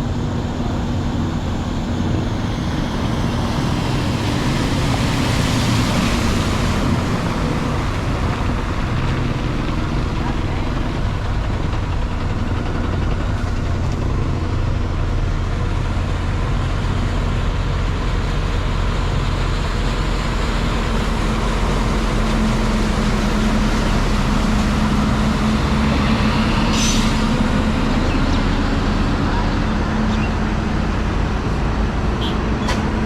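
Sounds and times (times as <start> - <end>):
bus engine running: 0.0 - 33.0
road and tyre noise: 0.0 - 33.0.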